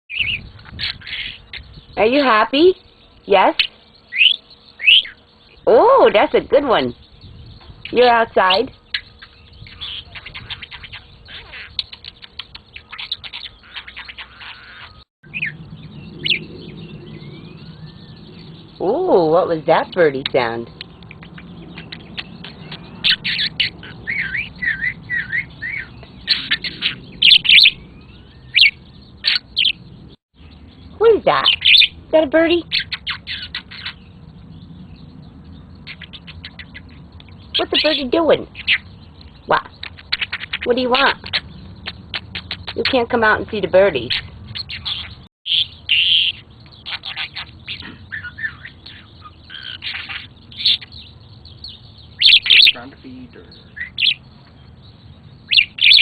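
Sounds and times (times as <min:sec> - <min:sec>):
budgie chirping and warbling: 0:00.1 - 0:56.0.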